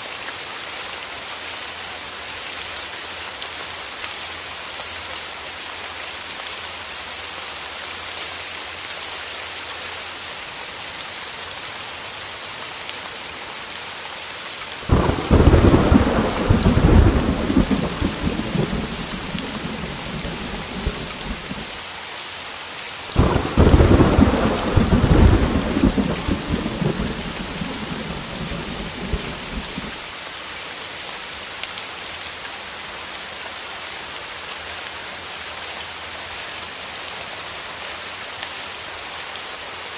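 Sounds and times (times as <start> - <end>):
heavy rain: 0.0 - 39.9
thunder rolling: 14.9 - 21.7, 23.2 - 30.0.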